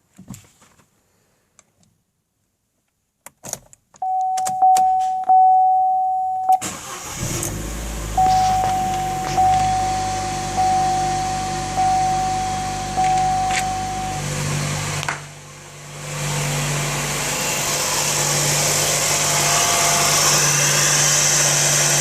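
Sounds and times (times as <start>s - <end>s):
car warning chime dinging: 4.0s - 7.0s, 8.1s - 14.5s
car engine starting and idling: 6.5s - 22.0s.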